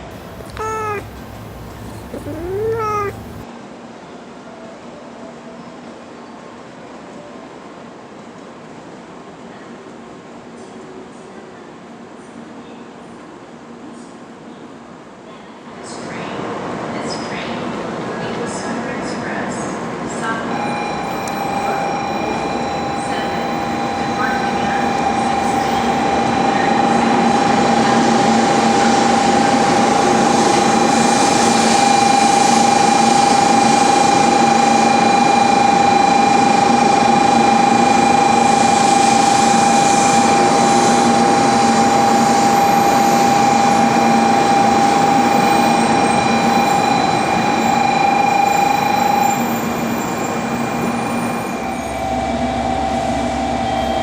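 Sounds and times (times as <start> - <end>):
high whine: 20.5 - 49.8, 51.0 - 54.0
electric train running: 20.5 - 54.0.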